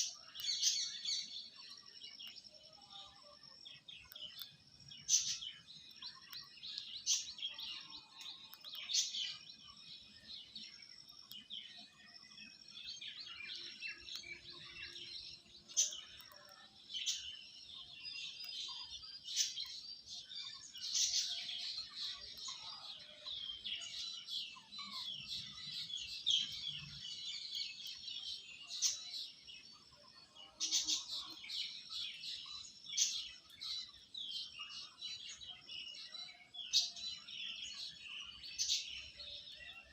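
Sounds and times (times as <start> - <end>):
flock of birds chirping: 0.0 - 39.9.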